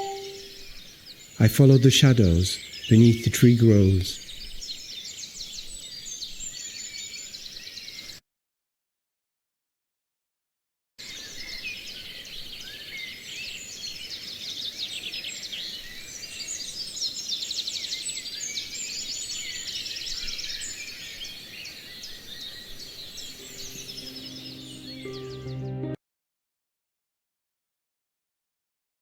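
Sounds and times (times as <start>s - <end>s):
music: 0.0s - 0.5s, 23.4s - 26.0s
songbirds chirping and trilling: 0.0s - 8.2s, 11.0s - 26.0s.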